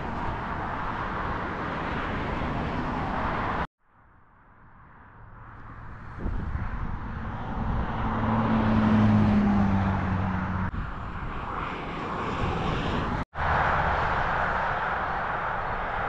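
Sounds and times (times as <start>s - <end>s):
train rushing and rumbling: 5.7s - 16.0s.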